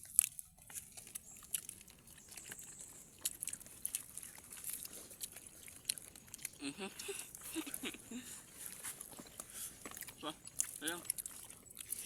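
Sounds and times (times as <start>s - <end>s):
mouth clicks and smacks: 0.0s - 12.0s
person chewing food: 0.0s - 12.0s.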